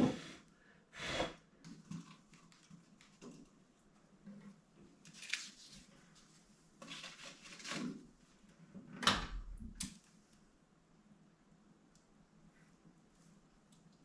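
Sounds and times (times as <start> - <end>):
scraping and rustling handling: 4.2 - 8.6.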